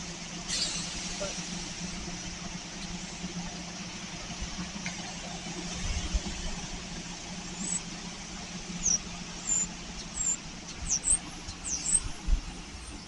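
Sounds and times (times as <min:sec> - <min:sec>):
steady low hum: 0:00.0 - 0:13.0
small birds chirping: 0:07.5 - 0:08.0, 0:08.8 - 0:13.0.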